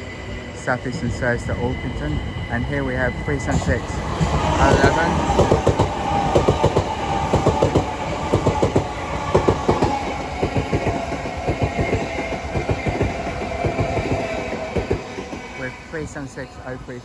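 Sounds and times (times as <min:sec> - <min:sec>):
train wheels clacking over rail joints: 0:03.5 - 0:15.5.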